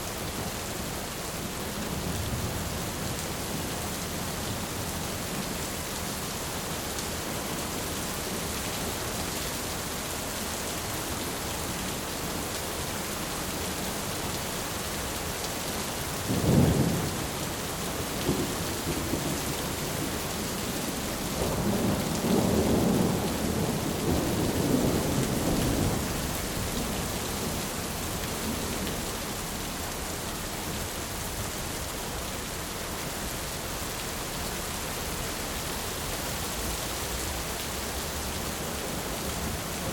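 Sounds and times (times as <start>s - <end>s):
low rumble of thunder: 16.2s - 29.0s
rain hissing: 32.6s - 39.9s.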